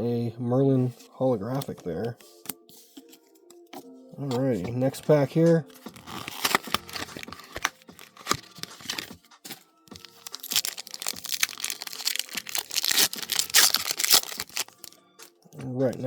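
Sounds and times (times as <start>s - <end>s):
foil wrapper tearing and crinkling: 5.7s - 9.2s, 9.9s - 15.0s.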